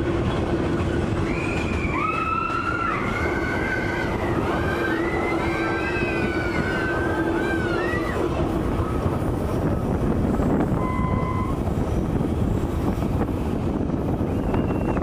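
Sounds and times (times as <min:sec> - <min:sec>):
train coaches rumbling and rattling: 0:00.0 - 0:15.0
high squeal: 0:01.2 - 0:08.2, 0:10.7 - 0:11.7, 0:14.2 - 0:15.0.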